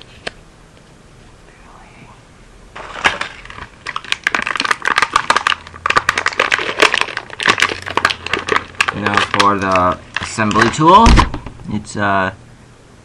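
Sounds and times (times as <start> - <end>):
packaging crackling and crinkling: 2.8 - 11.5.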